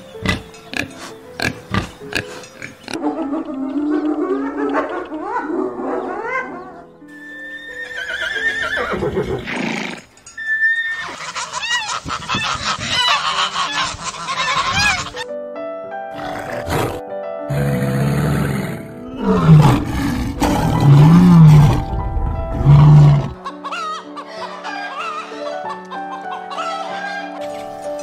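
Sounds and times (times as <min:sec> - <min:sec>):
background music: 0:00.0 - 0:28.0
horse whinnying: 0:07.1 - 0:11.9, 0:16.2 - 0:21.9, 0:22.5 - 0:23.4.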